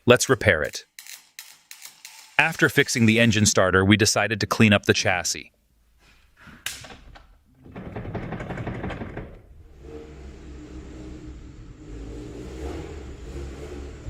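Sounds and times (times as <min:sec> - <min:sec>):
rough noisy clatter: 0:07.6 - 0:11.2.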